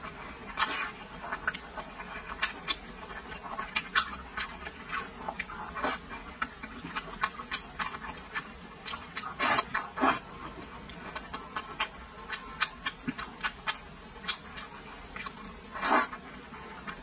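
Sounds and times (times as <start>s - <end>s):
chewing soft food: 0.0s - 17.0s
wet lip smacks and clicks: 10.9s - 16.2s
slurping bite: 11.1s - 16.2s.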